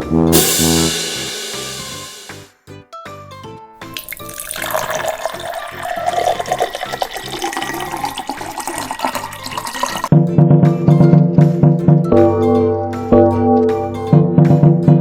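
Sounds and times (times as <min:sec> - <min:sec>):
light background music: 0:00.0 - 0:15.0
water running from a tap: 0:04.0 - 0:10.1.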